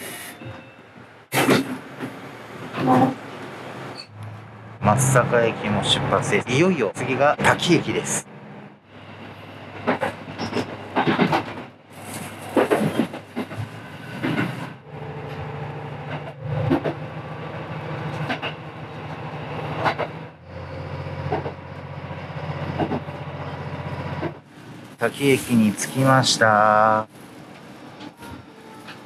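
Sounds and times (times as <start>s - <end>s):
low diesel engine hum: 1.1s - 29.0s
train wheels clacking over rail joints: 9.8s - 14.8s, 16.0s - 20.2s, 21.1s - 21.9s, 22.6s - 23.2s.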